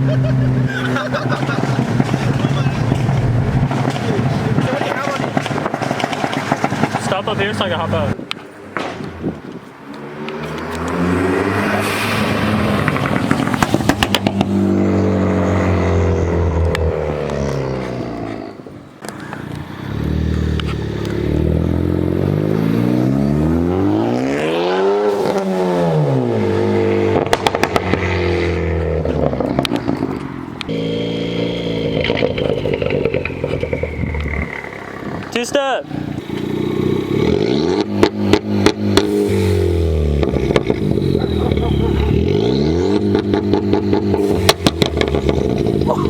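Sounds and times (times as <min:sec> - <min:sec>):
car engine revving: 0:00.0 - 0:08.2, 0:09.8 - 0:46.0
exhaust pops crackling: 0:00.0 - 0:11.0, 0:12.2 - 0:15.4, 0:16.3 - 0:17.7, 0:25.1 - 0:46.0
high whine: 0:25.1 - 0:36.6.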